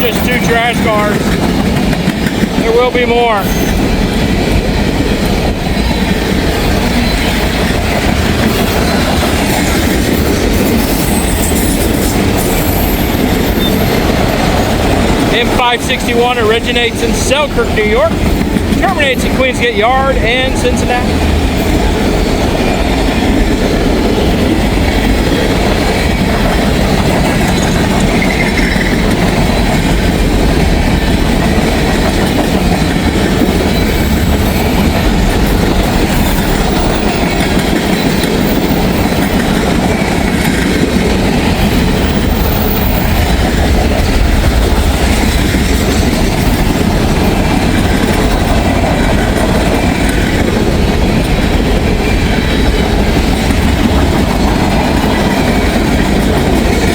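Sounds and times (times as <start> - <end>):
train wheels rumbling on rails: 0.0 - 56.9
wheels clacking over rail joints: 0.0 - 56.9
high wheel squeals: 8.4 - 14.6.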